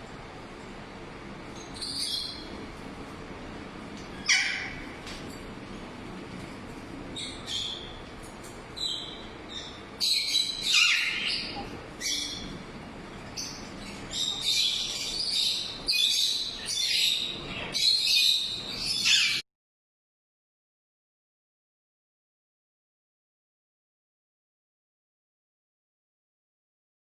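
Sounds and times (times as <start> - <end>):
parakeets squawking: 4.2 - 5.0, 8.8 - 12.6, 13.2 - 19.4.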